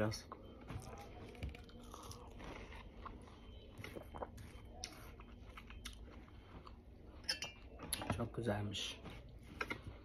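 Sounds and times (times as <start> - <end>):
wet chewing: 0.3 - 8.1.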